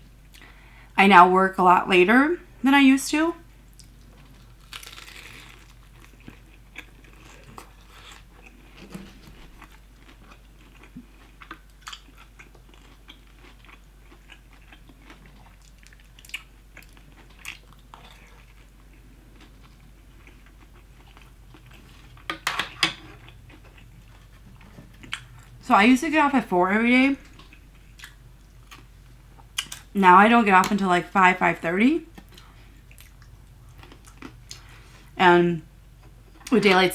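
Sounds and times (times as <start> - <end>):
chewing crispy fried chicken: 3.7 - 22.3, 27.2 - 30.0, 32.1 - 35.1.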